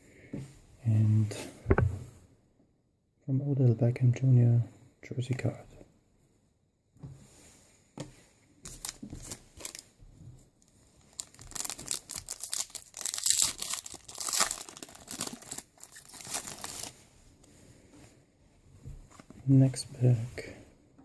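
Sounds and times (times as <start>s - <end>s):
wrapper tearing and crinkling: 8.7s - 9.9s, 11.0s - 17.0s.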